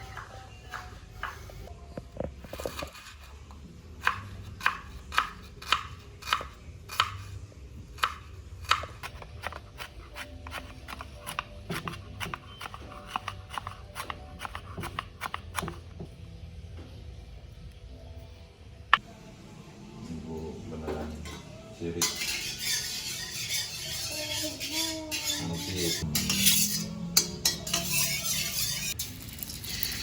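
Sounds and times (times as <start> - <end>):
knife chopping on cutting board: 8.0 - 15.9.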